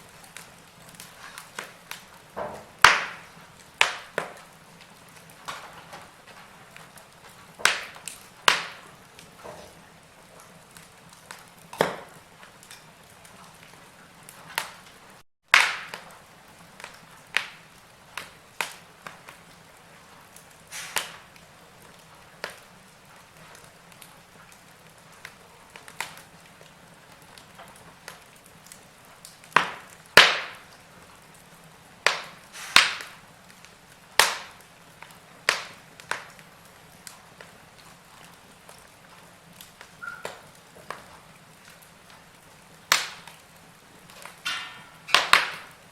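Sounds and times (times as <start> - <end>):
wood fire crackling: 0.0 - 45.9
soft hiss: 16.7 - 21.8.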